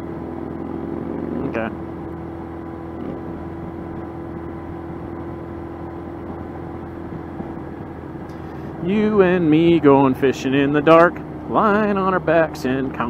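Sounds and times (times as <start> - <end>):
motorcycle engine cruising: 0.0 - 13.0
wind and road noise: 0.0 - 13.0.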